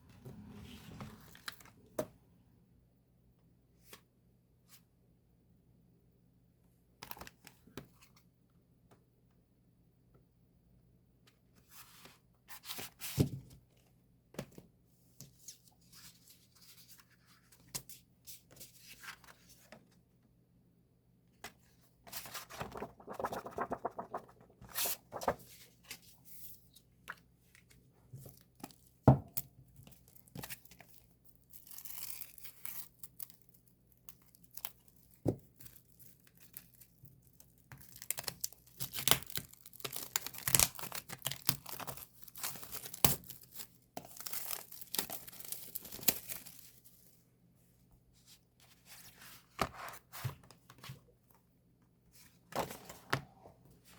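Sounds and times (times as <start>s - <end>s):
plastic and paper crinkling: 22.2s - 25.4s.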